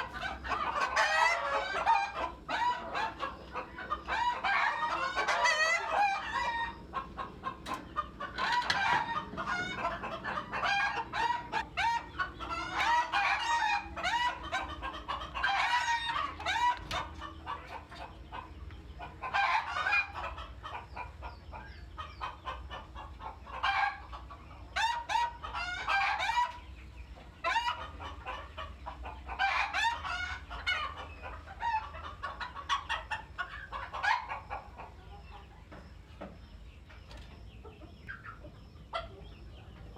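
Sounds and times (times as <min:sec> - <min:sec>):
roosters crowing: 0:00.0 - 0:20.8, 0:23.5 - 0:26.6
chickens clucking and calling: 0:00.0 - 0:39.9.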